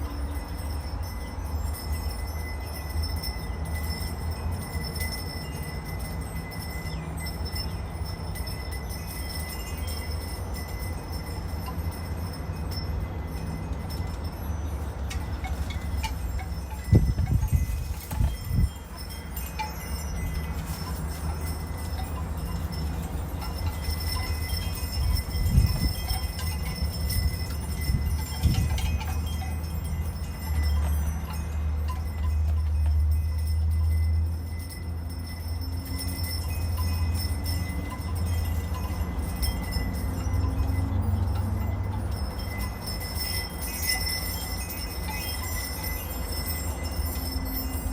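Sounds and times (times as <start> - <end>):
low wind rumble: 0.0 - 47.9
wind chimes ringing: 0.0 - 47.9
wind buffeting microphone: 10.9 - 32.6.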